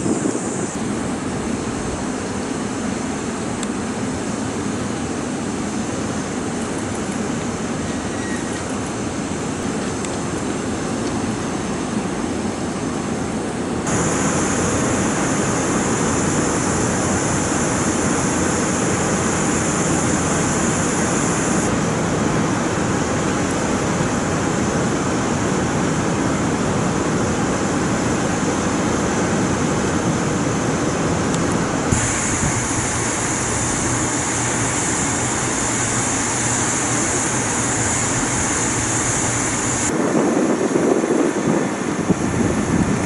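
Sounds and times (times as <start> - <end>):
high-pitched hiss: 0.0 - 1.0, 13.9 - 21.7, 31.9 - 39.9
train rumbling hiss: 0.0 - 43.0.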